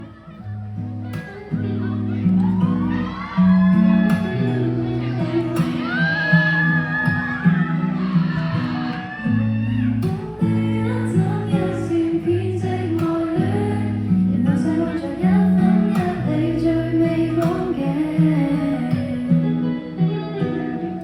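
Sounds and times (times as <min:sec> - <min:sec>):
low bass line: 0:00.0 - 0:08.7
guitars playing: 0:00.0 - 0:21.0
person singing: 0:02.6 - 0:07.6, 0:09.8 - 0:21.0.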